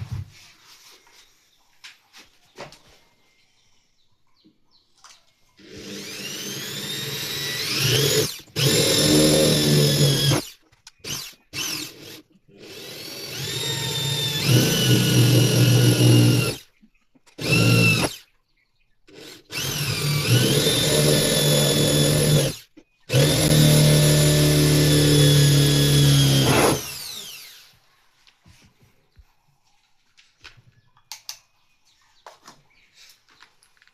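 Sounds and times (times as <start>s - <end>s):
electric drill motor whine: 5.6s - 16.6s, 17.4s - 18.2s, 19.1s - 27.7s.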